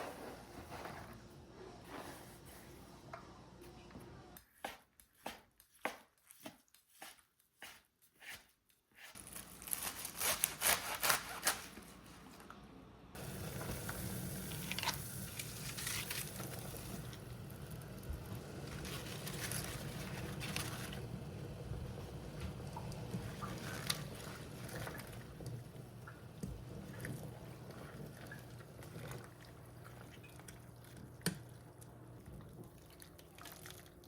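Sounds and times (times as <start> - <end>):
knife chopping on cutting board: 4.5 - 9.2
knife scraping strokes: 4.6 - 11.7
steady hiss with low hum: 11.7 - 34.0.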